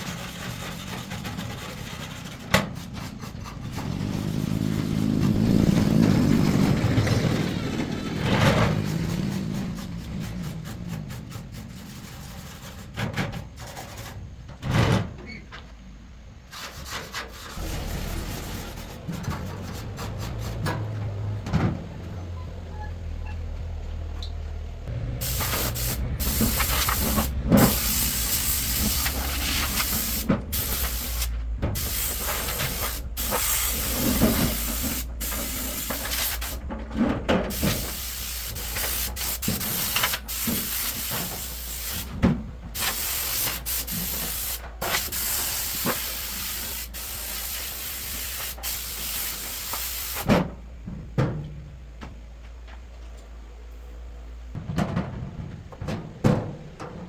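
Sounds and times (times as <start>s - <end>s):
compressed air hissing: 24.9s - 36.6s, 37.5s - 50.4s.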